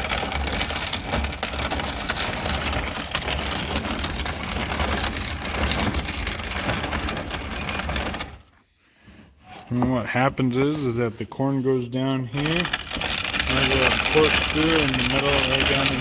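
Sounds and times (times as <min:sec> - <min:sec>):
grain grinder crunching corn: 0:00.0 - 0:08.4, 0:12.4 - 0:16.0.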